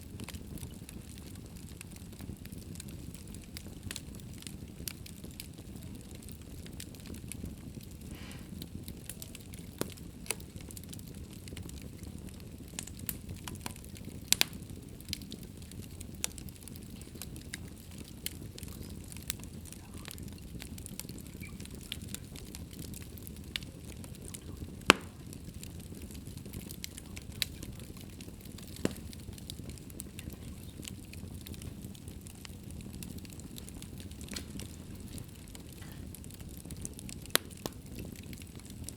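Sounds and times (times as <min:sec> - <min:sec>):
fire flames rumbling: 0:00.0 - 0:38.9
wood fire crackling and popping: 0:00.0 - 0:38.9.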